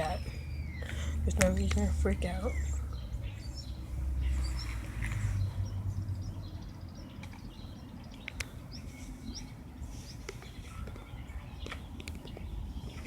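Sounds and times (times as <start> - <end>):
birds chirping: 0.0 - 13.0
sharp clicks: 8.1 - 8.6.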